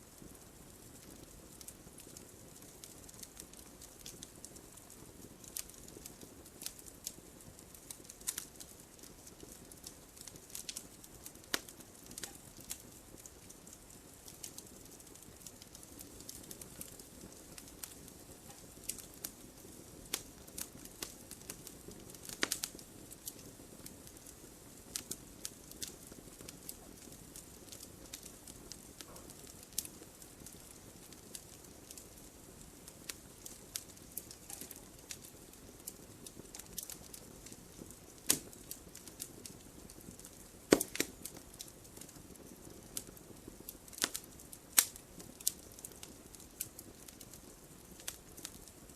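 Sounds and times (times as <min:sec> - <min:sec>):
wood fire crackling and popping: 0:00.0 - 0:48.9.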